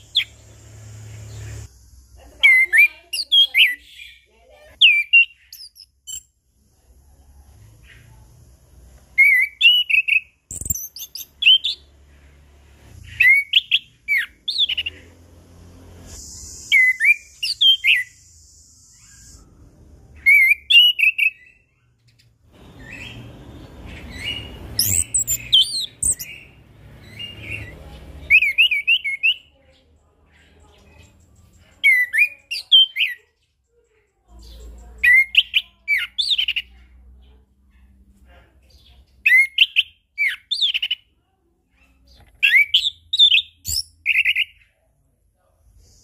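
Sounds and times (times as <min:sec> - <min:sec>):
thrush singing whistled phrases: 0:09.2 - 0:11.9, 0:13.1 - 0:15.0, 0:16.1 - 0:19.6, 0:20.2 - 0:21.6, 0:22.6 - 0:29.5.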